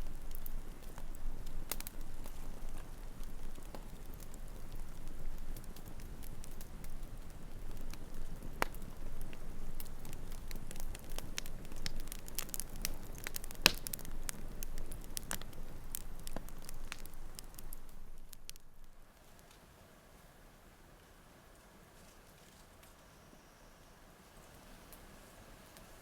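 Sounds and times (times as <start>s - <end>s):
low rush of flame: 0.0s - 19.5s
campfire crackling and popping: 0.0s - 19.6s, 25.7s - 26.0s.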